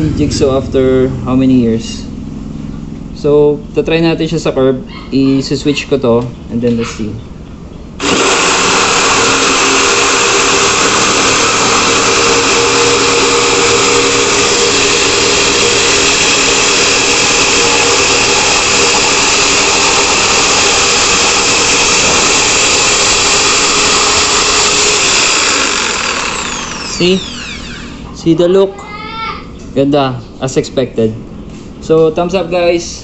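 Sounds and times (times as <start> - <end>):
electric jigsaw cutting wood: 8.0 - 28.0.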